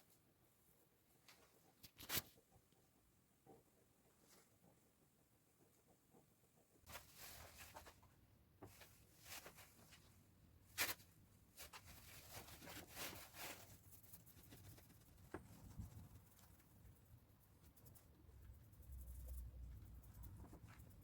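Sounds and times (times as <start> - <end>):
scratching and rustling handling: 5.6 - 21.0.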